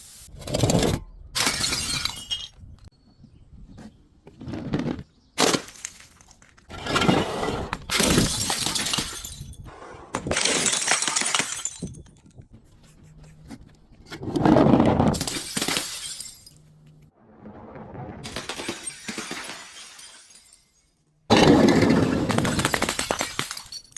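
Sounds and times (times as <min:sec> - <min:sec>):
glass bottles shattering: 0:01.4 - 0:02.6, 0:05.4 - 0:12.2, 0:15.2 - 0:16.7, 0:18.2 - 0:23.9.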